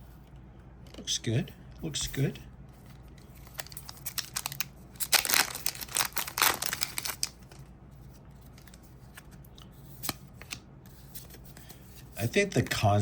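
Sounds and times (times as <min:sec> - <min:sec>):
cards being handled: 0:02.6 - 0:12.7
foil pack crinkling and tearing: 0:03.4 - 0:07.7.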